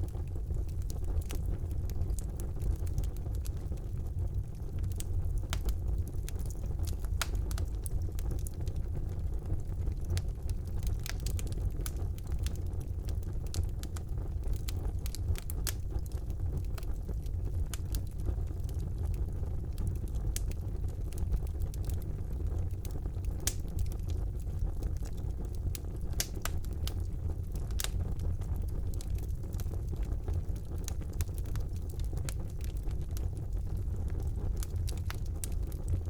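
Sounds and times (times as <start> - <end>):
fireplace fire crackling: 0.0 - 36.0.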